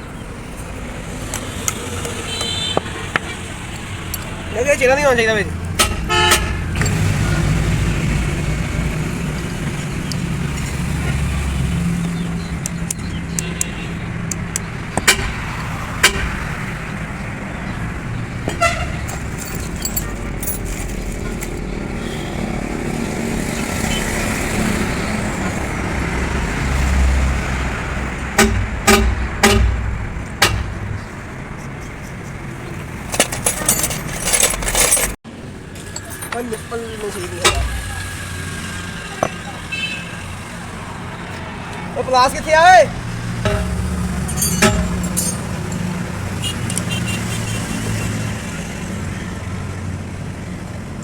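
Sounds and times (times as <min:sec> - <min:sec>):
road traffic noise: 0:00.0 - 0:51.0
metal knocks and clicks: 0:12.6 - 0:16.5, 0:28.3 - 0:31.1, 0:33.0 - 0:35.2, 0:36.2 - 0:38.2, 0:43.4 - 0:47.0
hammer striking steel: 0:15.0 - 0:16.5, 0:28.4 - 0:31.0, 0:37.4 - 0:38.2, 0:43.4 - 0:45.9
metallic clinking and rattling: 0:18.5 - 0:21.6, 0:31.8 - 0:35.2, 0:35.8 - 0:38.2, 0:43.4 - 0:46.1.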